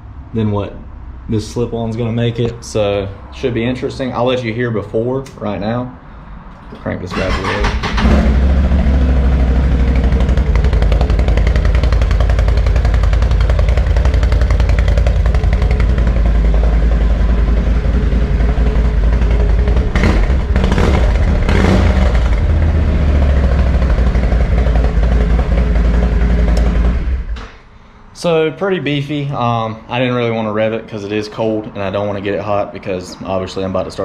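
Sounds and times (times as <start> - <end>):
atv engine idling: 7.1 - 27.4.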